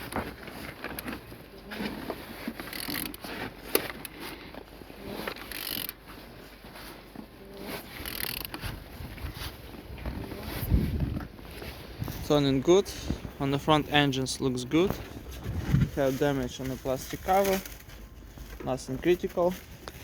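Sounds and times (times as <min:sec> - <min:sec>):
engine turned over by hand: 0:00.0 - 0:06.4
ratchet clicks: 0:02.7 - 0:03.2, 0:05.5 - 0:06.0, 0:08.0 - 0:08.6.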